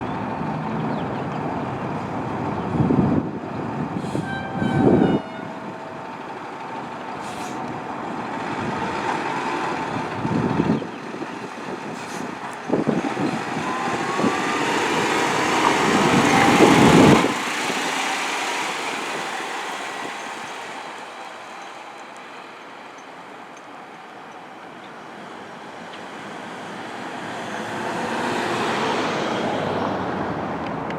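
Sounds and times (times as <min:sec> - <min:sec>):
fire engine passing: 0:00.0 - 0:30.9
air horn blasts: 0:04.0 - 0:06.0
fire engine siren: 0:04.0 - 0:10.8, 0:12.1 - 0:24.9.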